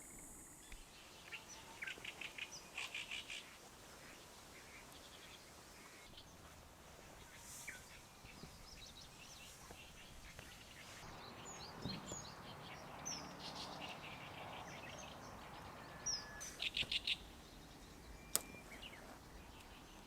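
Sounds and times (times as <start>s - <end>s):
soft hiss: 0.0s - 11.5s
faint bird chirps: 0.0s - 20.0s.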